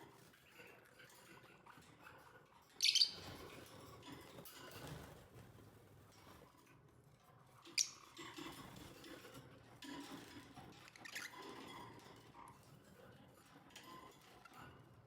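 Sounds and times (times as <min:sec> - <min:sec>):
soft bird chirps: 0:02.8 - 0:03.4, 0:07.6 - 0:08.2.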